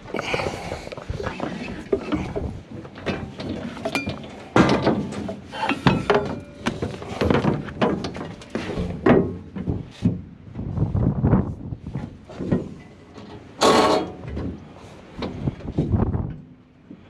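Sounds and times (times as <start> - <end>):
metal tools clanking: 3.0 - 7.3.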